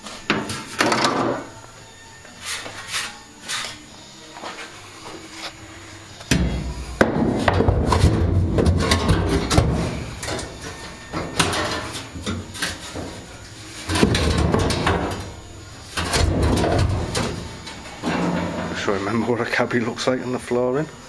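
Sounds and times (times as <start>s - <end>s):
knocks and clatter: 6.3s - 13.2s, 13.9s - 15.4s, 16.0s - 18.8s.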